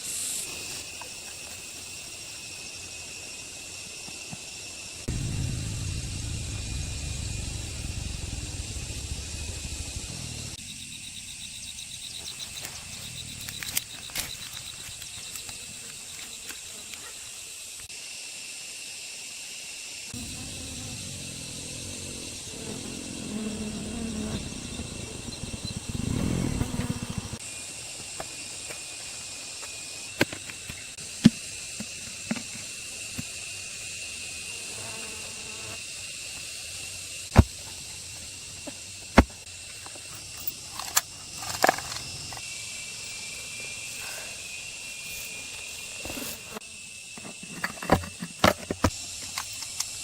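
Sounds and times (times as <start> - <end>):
insects chirring: 0.0 - 50.0
low rumbling noise: 5.1 - 10.6, 20.2 - 27.4.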